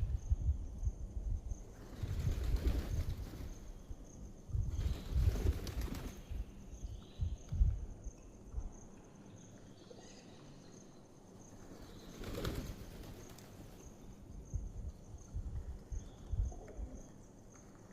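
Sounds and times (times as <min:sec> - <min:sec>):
birds' wings flapping: 0:01.7 - 0:03.8, 0:04.7 - 0:06.4, 0:11.7 - 0:14.0.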